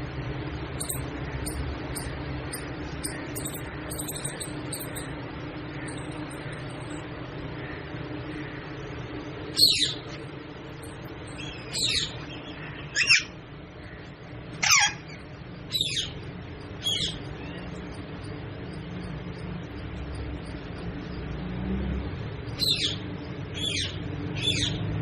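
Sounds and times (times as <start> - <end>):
parrot squawking: 9.6 - 10.0, 12.9 - 13.3, 14.6 - 16.2, 16.8 - 17.2.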